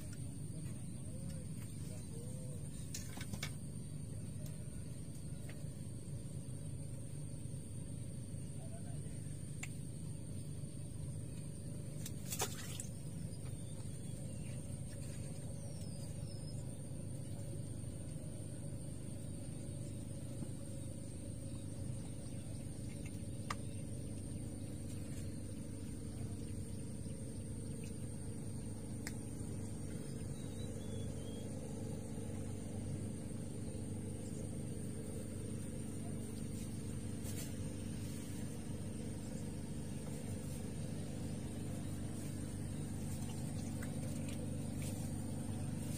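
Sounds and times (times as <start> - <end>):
distant engine hum: 0.0 - 45.9.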